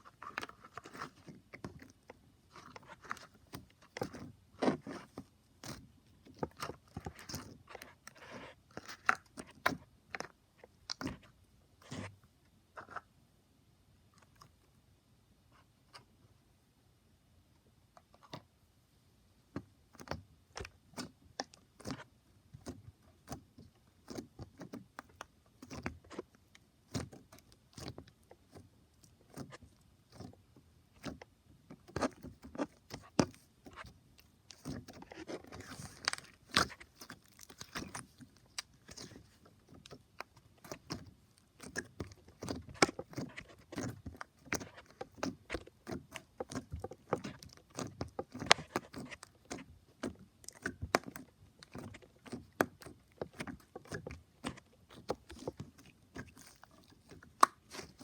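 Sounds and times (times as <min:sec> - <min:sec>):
crunchy slime crackling: 0:40.5 - 0:58.0.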